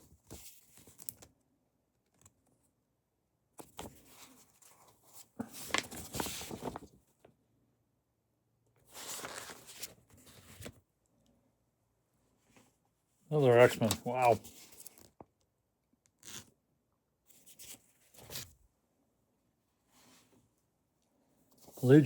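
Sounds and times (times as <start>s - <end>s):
comic books rustling: 3.6s - 7.2s, 8.8s - 10.8s, 13.4s - 15.2s, 21.5s - 22.0s.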